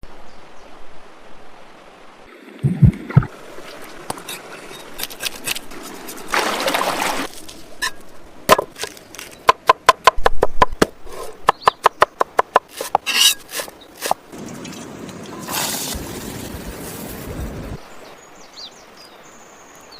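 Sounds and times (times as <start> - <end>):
water splashing: 2.3 - 9.4.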